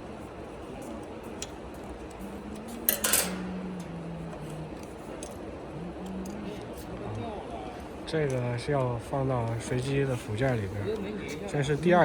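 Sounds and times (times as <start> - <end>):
small metal parts clinking: 2.8 - 3.6.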